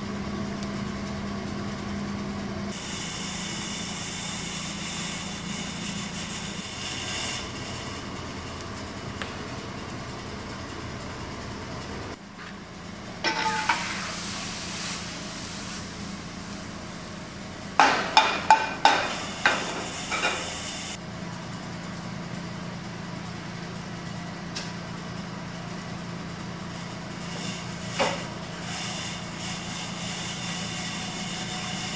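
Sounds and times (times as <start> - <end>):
sharp knocks and clatters: 17.8 - 20.5.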